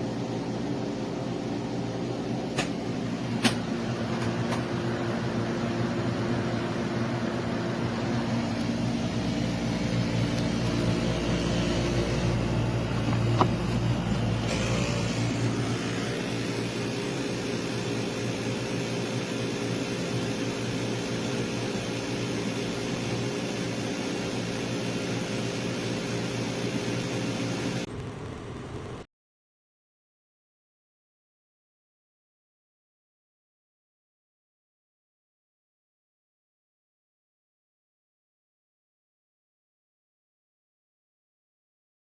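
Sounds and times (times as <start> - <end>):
air conditioner humming: 0.1 - 17.5.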